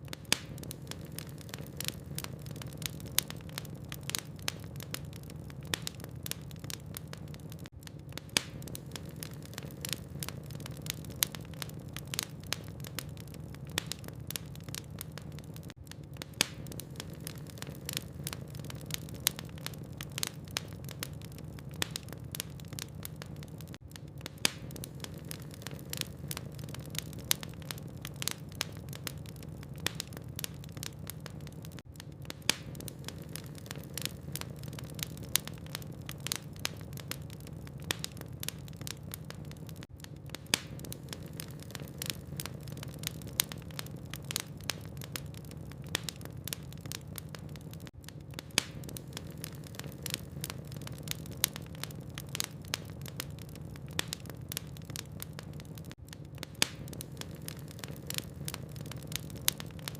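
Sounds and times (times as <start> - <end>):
logs crackling in a fireplace: 0.0 - 59.9.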